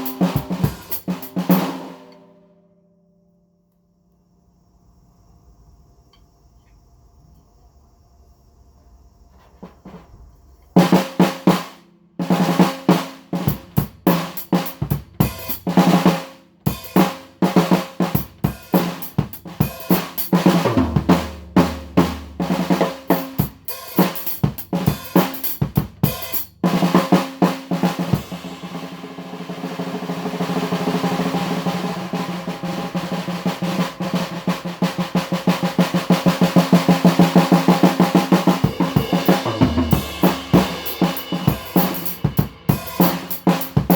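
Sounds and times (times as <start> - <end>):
snare drum roll: 0.0 - 2.3, 10.8 - 43.9
snare drum strokes: 0.0 - 2.3, 12.3 - 43.9.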